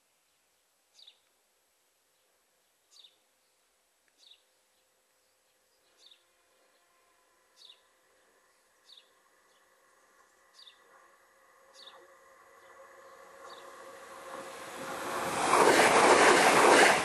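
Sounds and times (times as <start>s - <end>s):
distant train hum: 6.2s - 17.0s
faint high bird chirp: 7.6s - 9.6s.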